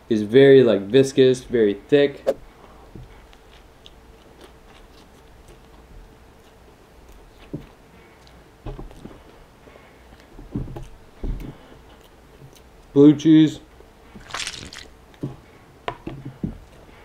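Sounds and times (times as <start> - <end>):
chewing food: 3.2 - 7.5, 11.4 - 12.9, 14.1 - 15.0.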